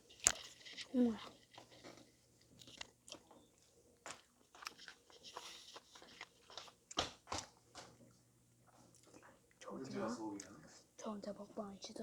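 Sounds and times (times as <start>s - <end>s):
chewing and crunching: 0.0s - 7.2s, 8.7s - 9.6s.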